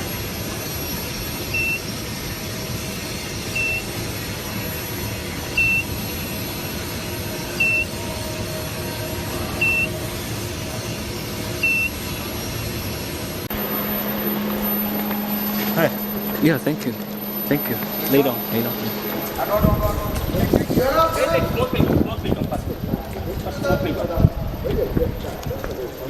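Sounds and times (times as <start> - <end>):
machinery noise: 3.0 - 26.0
high electronic beep: 13.5 - 21.6.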